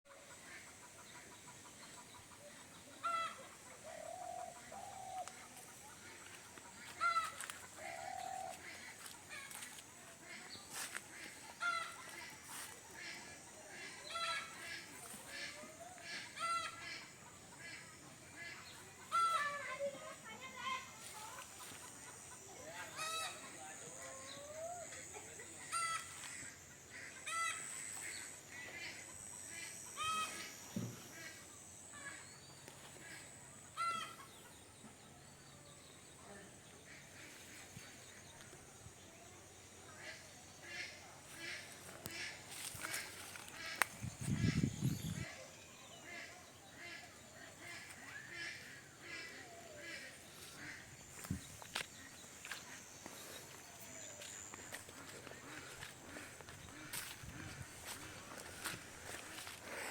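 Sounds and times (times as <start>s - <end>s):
chickens clucking: 0.1s - 31.9s, 46.0s - 59.9s
sharp chicken calls: 0.2s - 9.7s, 10.7s - 19.8s, 21.3s - 24.5s, 25.1s - 32.2s, 33.0s - 34.5s
bird calling: 2.0s - 13.2s.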